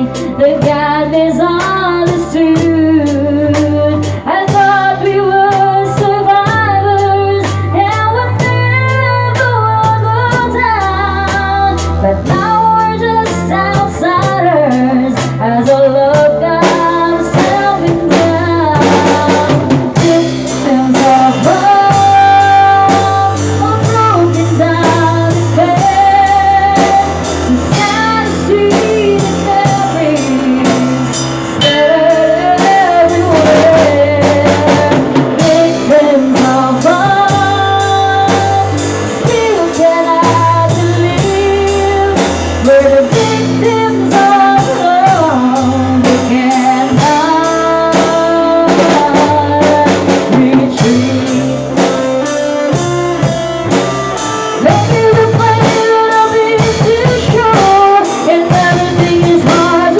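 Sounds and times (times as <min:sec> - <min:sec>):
bass and guitars: 0:00.0 - 0:59.9
drum kit beat: 0:00.0 - 0:59.9
lead melody with vibrato: 0:00.0 - 0:59.9.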